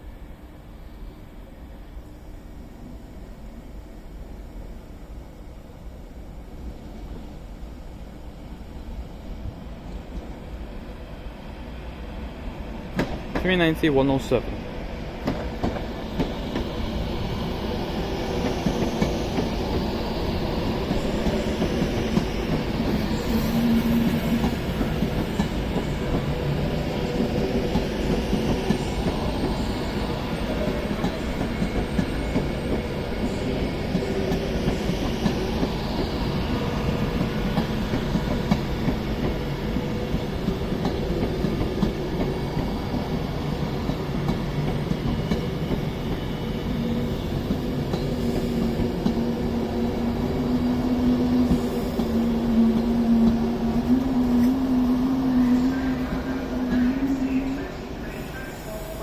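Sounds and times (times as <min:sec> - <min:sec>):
train wheels on rails: 0:06.6 - 0:59.0
wheels clickety-clack over track: 0:12.9 - 0:13.8, 0:15.2 - 0:16.8, 0:20.8 - 0:26.5, 0:30.4 - 0:32.9, 0:36.9 - 0:43.2, 0:43.8 - 0:46.3, 0:47.4 - 0:54.6.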